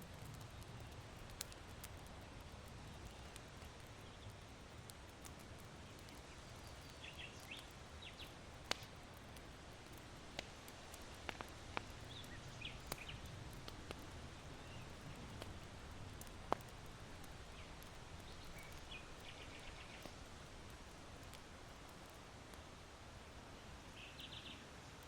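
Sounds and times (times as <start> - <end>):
charcoal fire crackling: 0.0 - 25.0
small birds chirping: 0.3 - 10.0, 11.4 - 20.3, 23.8 - 24.7.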